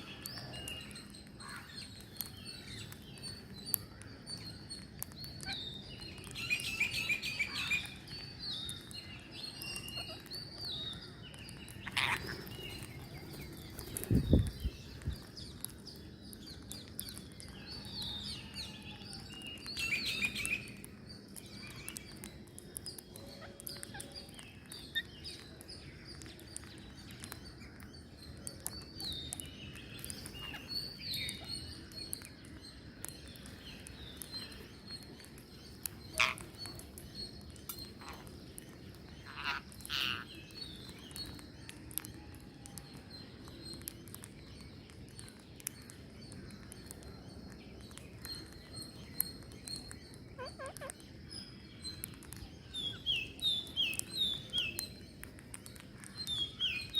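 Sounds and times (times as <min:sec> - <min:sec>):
parrots chirping: 0:11.8 - 0:12.9, 0:35.6 - 0:36.8, 0:39.2 - 0:41.0, 0:50.4 - 0:51.0.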